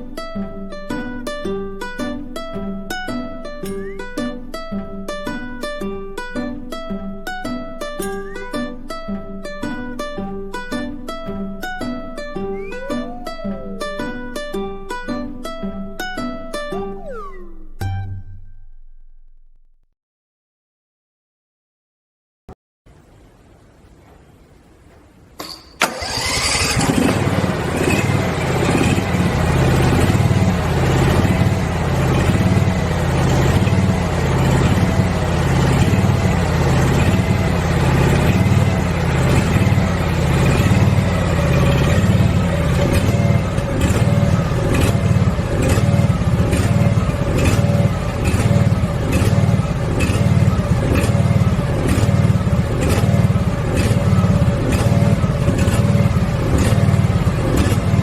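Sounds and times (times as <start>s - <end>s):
riding mower engine idling unevenly: 25.4s - 58.0s.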